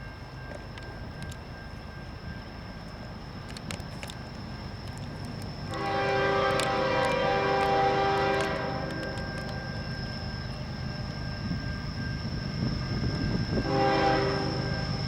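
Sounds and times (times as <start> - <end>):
freight train rumbling: 0.0 - 15.0
locomotive air horn chord: 5.7 - 9.8, 13.6 - 14.9.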